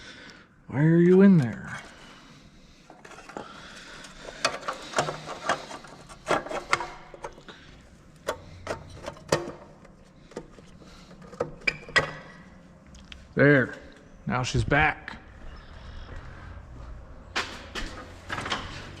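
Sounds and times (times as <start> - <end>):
rubbing and scraping: 2.8 - 7.4
clicks and knocks of parts: 2.9 - 13.2.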